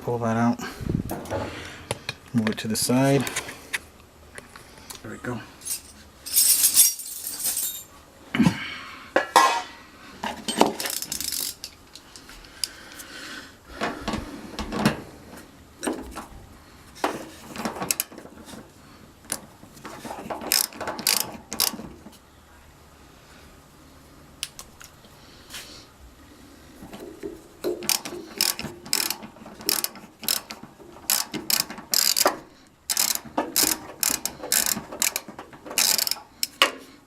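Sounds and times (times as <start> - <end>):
ratchet wrench clicking: 10.8 - 11.7, 20.5 - 21.8, 27.8 - 32.3, 32.9 - 36.6.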